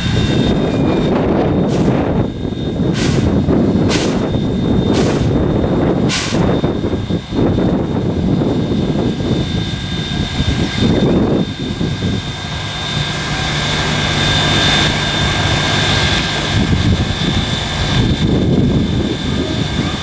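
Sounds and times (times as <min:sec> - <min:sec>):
steam locomotive low rumble: 0:00.0 - 0:20.0
sharp steam hisses: 0:01.7 - 0:02.3, 0:02.9 - 0:06.9.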